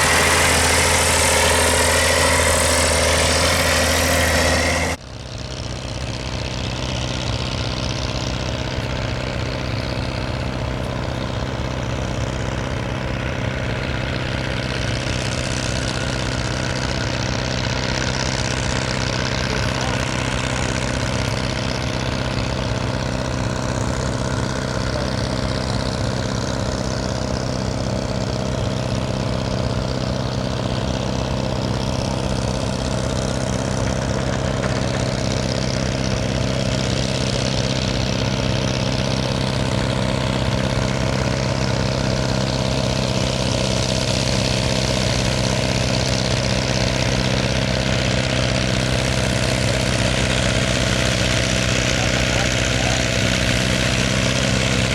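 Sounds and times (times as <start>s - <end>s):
diesel tractor engine droning: 0.0s - 54.9s.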